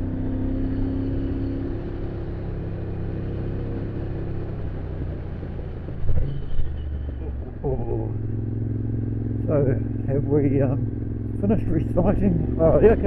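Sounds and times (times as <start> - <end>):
road noise: 0.0 - 13.0
motorcycle engine running: 6.7 - 13.0.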